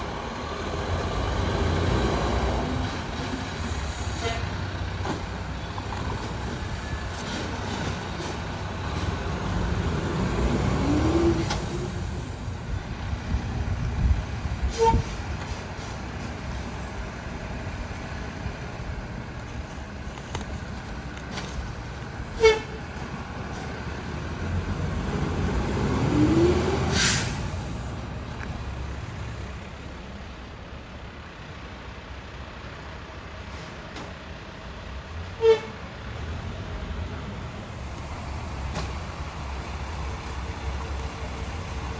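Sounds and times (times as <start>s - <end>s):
garbage truck diesel engine: 0.0s - 41.9s
air hiss: 26.9s - 27.9s.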